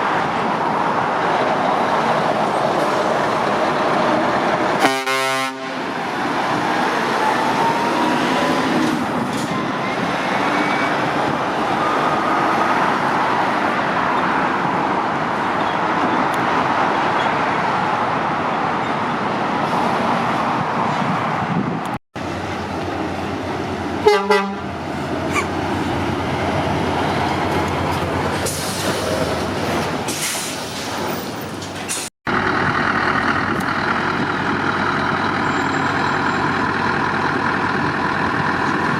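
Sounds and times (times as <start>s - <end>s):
rumble of motorway traffic: 0.0s - 38.9s
vehicle horn tooting: 4.8s - 5.8s, 24.0s - 24.7s.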